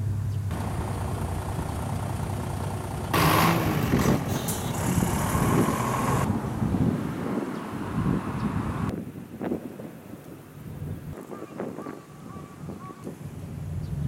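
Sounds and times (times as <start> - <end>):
road traffic rumble: 0.0 - 14.0
vehicle passing close by: 0.5 - 8.9.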